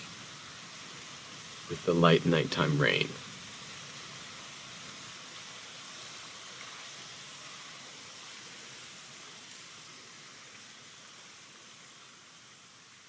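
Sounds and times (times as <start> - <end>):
light rain falling: 0.0 - 13.0.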